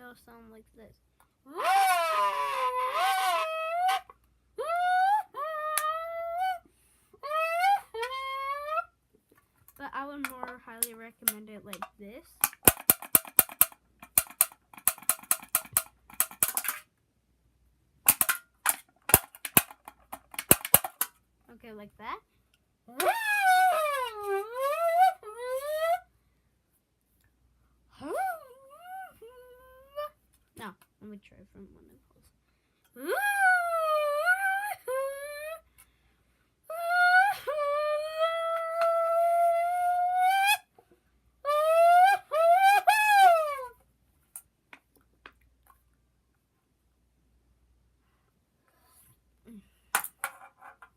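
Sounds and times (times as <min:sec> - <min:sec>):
child humming engine imitation: 0:01.5 - 0:04.0, 0:04.6 - 0:08.9, 0:22.9 - 0:26.0, 0:28.0 - 0:30.2, 0:33.0 - 0:35.6, 0:36.7 - 0:40.6
metal can popping and snapping: 0:10.2 - 0:16.8, 0:18.1 - 0:21.2.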